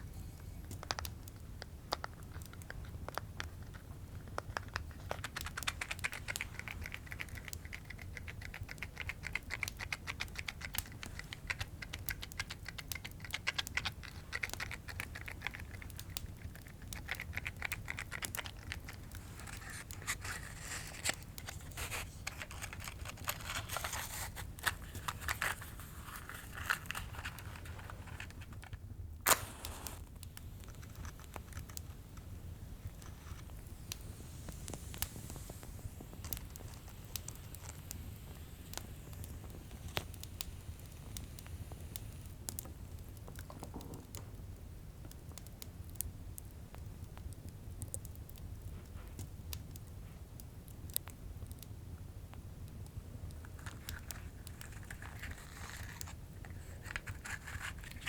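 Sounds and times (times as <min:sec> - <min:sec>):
fire crackling and popping: 0:00.0 - 0:58.0
rustling and scraping handling: 0:02.2 - 0:40.2, 0:53.4 - 0:58.0.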